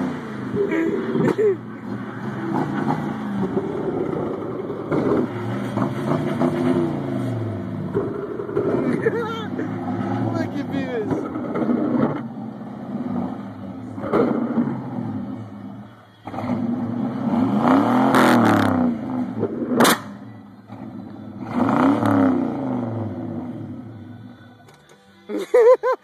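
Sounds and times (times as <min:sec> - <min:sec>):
car engine revving: 0:00.0 - 0:23.9
sharp bang: 0:19.8 - 0:20.2.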